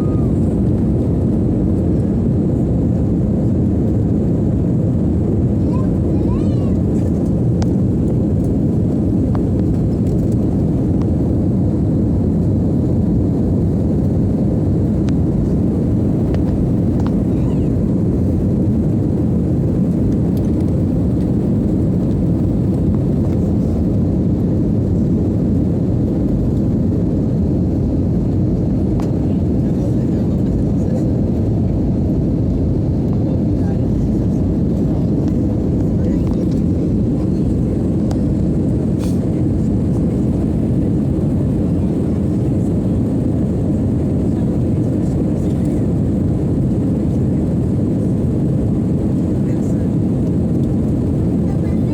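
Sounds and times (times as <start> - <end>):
jet airliner rumbling: 0.0 - 51.9.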